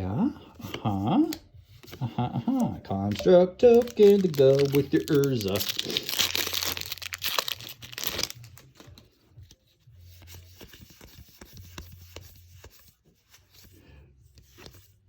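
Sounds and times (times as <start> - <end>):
cards rustling and clicking: 0.5 - 15.0
plastic wrapper crinkling and tearing: 2.5 - 9.1.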